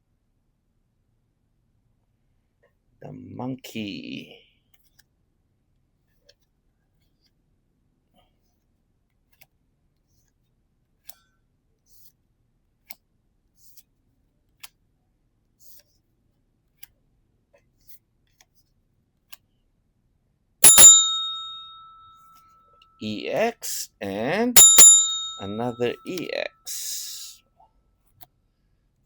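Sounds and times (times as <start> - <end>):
bright bell ding: 20.6 - 22.1, 24.5 - 27.2.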